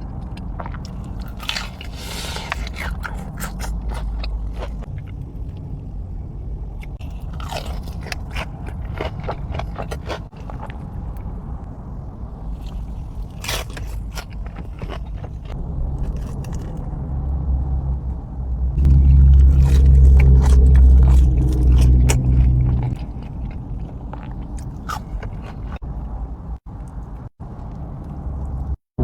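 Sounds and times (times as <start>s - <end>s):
chewing crispy fried chicken: 0.0s - 5.8s, 6.8s - 11.4s, 12.5s - 16.9s, 18.8s - 28.7s
loud low hum: 15.5s - 26.6s.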